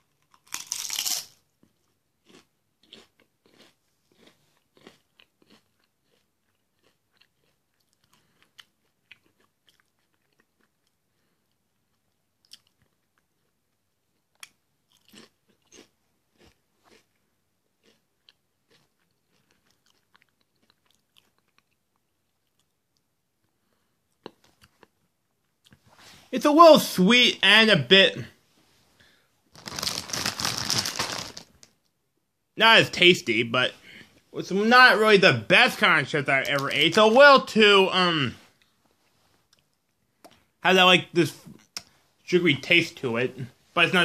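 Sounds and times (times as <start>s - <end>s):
chewing potato chips: 0.0s - 25.8s, 29.5s - 31.8s.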